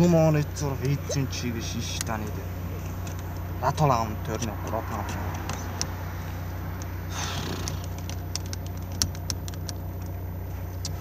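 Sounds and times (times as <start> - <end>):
car engine idling: 0.0 - 11.0
rustle: 6.1 - 11.0.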